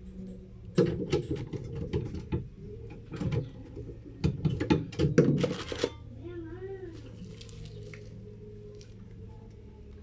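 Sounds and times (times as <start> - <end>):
tools and parts clicking and knocking: 0.2 - 6.0.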